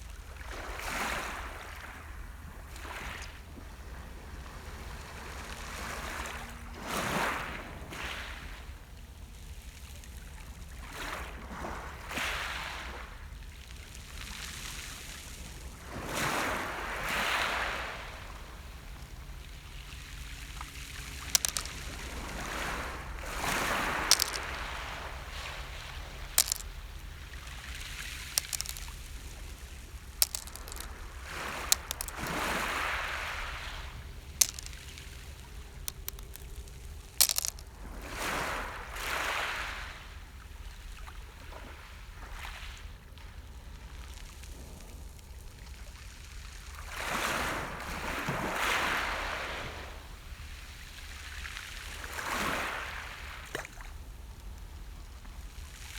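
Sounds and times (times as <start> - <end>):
sharp clicks: 28.4 - 28.9, 30.2 - 30.9, 35.8 - 36.6.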